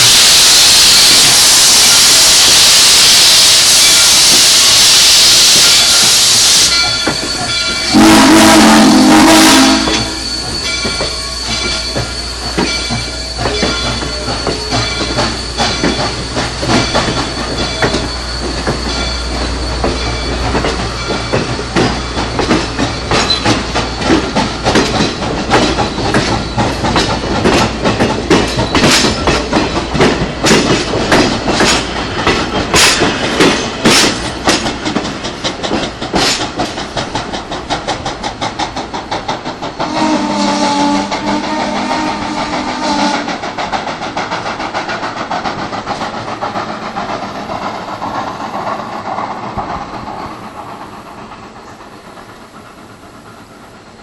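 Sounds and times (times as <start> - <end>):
steam whistle blast: 0.0 - 7.0, 7.8 - 11.6, 39.8 - 43.3
steam hissing: 0.0 - 54.0
steam train rhythmic chugging: 0.0 - 54.0.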